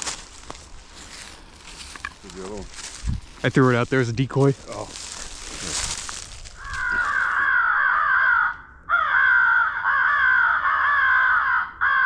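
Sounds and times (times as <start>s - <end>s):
crow cawing: 6.5s - 12.0s.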